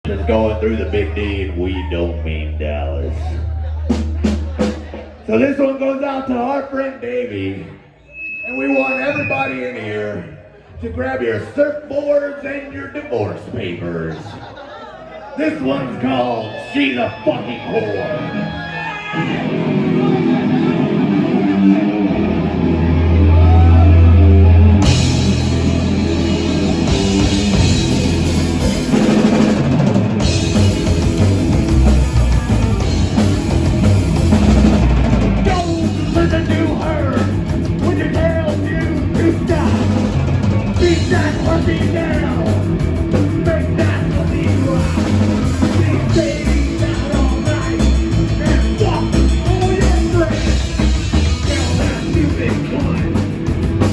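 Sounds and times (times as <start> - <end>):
bass notes: 0.0 - 5.7, 19.2 - 53.9
live rock band playing: 2.4 - 5.3, 18.2 - 53.9
drums with cymbals: 3.9 - 5.3, 24.8 - 53.9.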